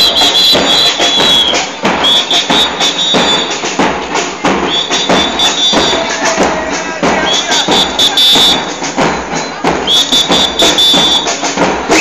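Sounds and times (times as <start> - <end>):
whistle blowing warbling blasts: 0.0 - 3.7, 4.6 - 6.1, 7.2 - 8.8, 9.4 - 12.0
bass drums with cymbals: 0.0 - 12.0.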